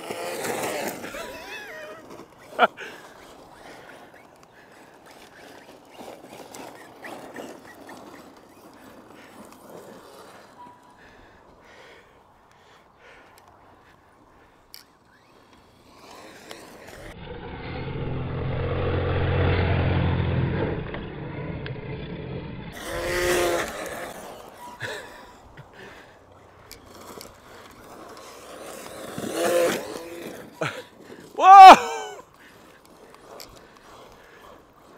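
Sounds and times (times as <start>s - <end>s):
rc truck motor and tyres on dirt: 0.0s - 34.9s
electric motor whine: 15.0s - 24.9s.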